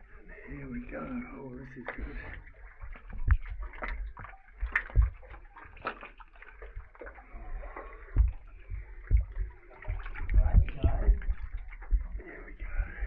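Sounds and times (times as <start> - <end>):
water sloshing and splashing: 0.0 - 13.0
low dull thumps: 6.8 - 13.0.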